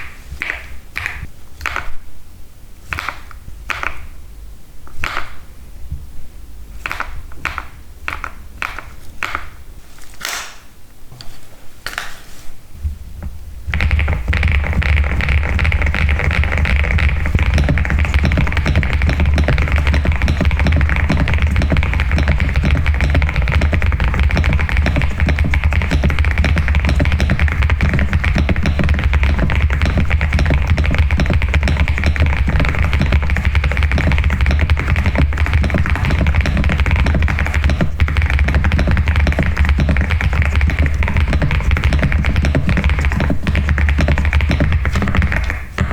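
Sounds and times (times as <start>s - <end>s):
fast typing on mechanical keyboard: 13.7s - 45.9s
sharp clicks and clacks: 13.7s - 45.9s.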